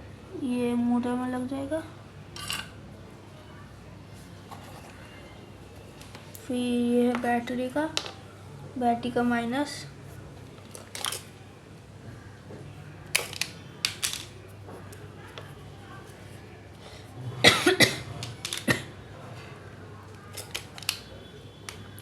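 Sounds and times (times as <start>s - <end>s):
wires rustling: 18.0s - 19.0s, 20.1s - 22.0s
clicks of small electronic parts: 20.4s - 21.1s.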